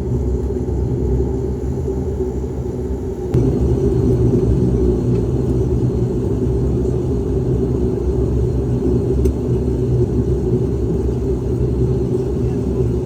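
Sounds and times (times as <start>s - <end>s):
turboprop engines droning in cabin: 0.0s - 13.0s.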